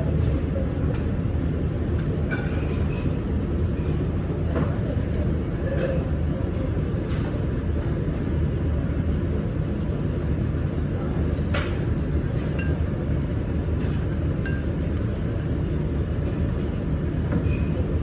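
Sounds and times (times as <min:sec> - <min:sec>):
tableware clinking: 0:02.3 - 0:04.1, 0:14.4 - 0:14.8, 0:17.3 - 0:17.9.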